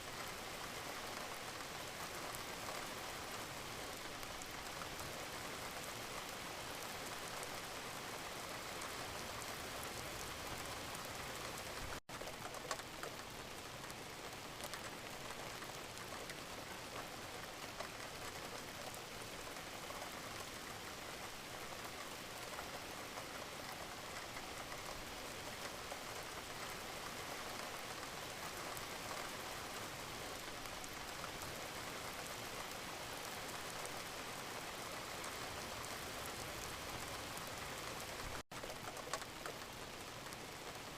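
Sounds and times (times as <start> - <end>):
steady rain falling: 0.0 - 40.9
raindrop ticks: 8.6 - 40.9.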